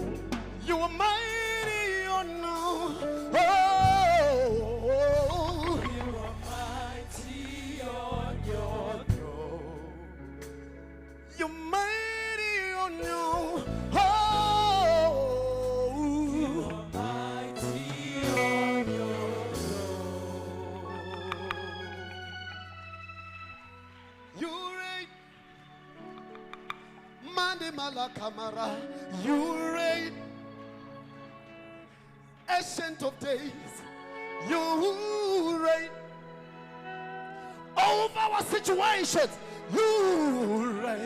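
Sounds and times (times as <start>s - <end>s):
solo voice singing: 0.0s - 10.5s, 11.3s - 22.4s, 27.2s - 30.3s, 37.8s - 41.0s
bass notes and chords: 0.0s - 24.3s.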